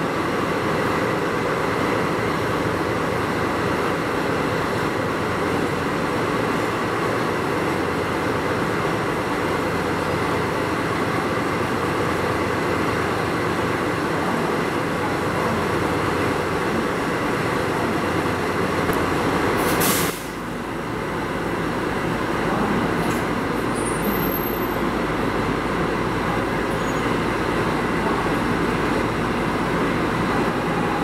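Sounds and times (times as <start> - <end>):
diesel locomotive engine rumble: 0.0 - 31.0
electric train rolling slowly: 0.0 - 31.0
short sharp hiss: 19.6 - 20.4.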